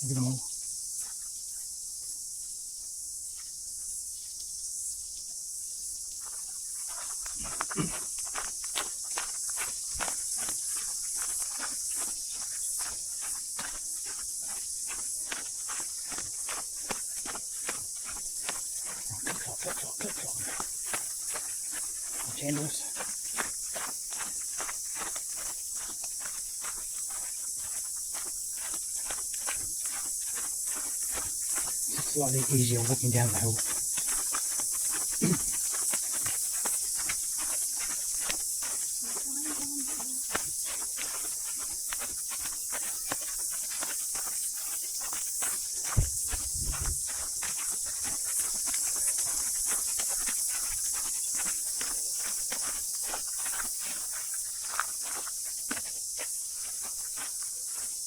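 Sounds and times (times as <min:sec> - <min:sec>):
cicadas chorus: 0:00.0 - 0:58.0
footsteps on track: 0:06.0 - 0:58.0.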